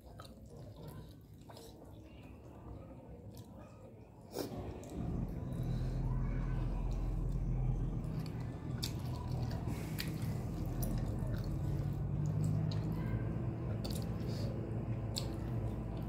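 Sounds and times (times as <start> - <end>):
people chewing with wet clicks: 0.0 - 5.6, 6.3 - 16.0
steady low hum: 4.5 - 16.0.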